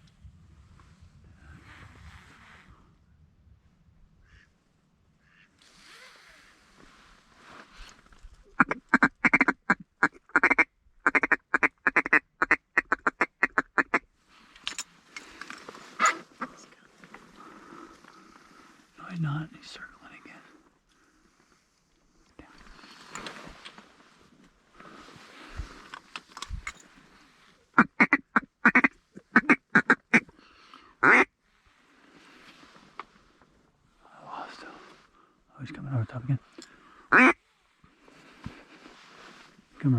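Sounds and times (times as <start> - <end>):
duck call quacking notes: 8.6 - 9.7, 10.3 - 14.0, 27.8 - 30.2, 31.0 - 31.3, 37.1 - 37.4.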